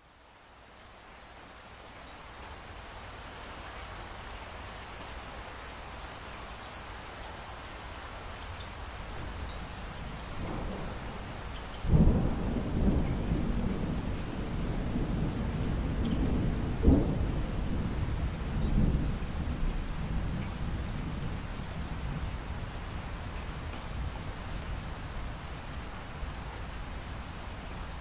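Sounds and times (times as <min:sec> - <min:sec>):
steady rain: 0:00.0 - 0:28.0
thunder clap with deep rumble: 0:10.4 - 0:22.2.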